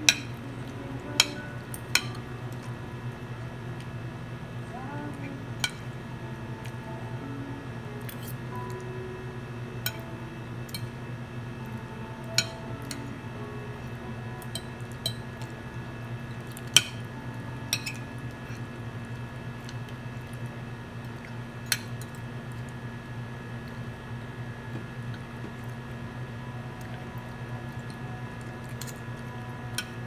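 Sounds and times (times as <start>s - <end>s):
steady low hum: 0.0s - 30.0s
cutlery clinking on plate: 17.7s - 18.0s.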